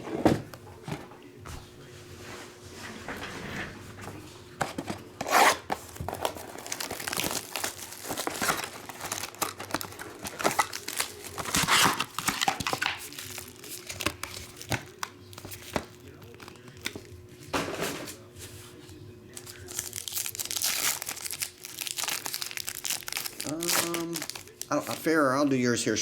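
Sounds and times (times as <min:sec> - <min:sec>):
card pack wrappers tearing: 0:04.8 - 0:17.1, 0:19.3 - 0:25.8
wrapper crinkling: 0:05.3 - 0:17.1, 0:19.3 - 0:26.0.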